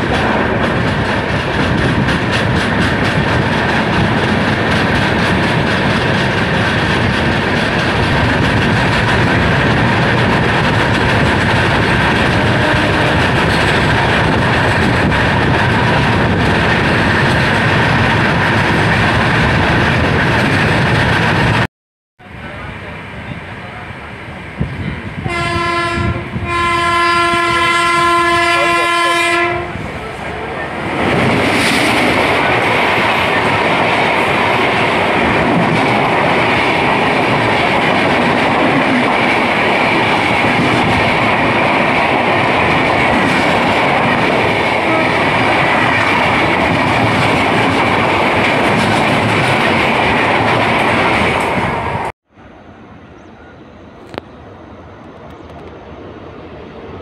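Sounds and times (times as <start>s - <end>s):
trains passing with wheel clatter: 0.0s - 57.0s
locomotive horn blasts: 12.4s - 13.3s, 25.2s - 29.8s.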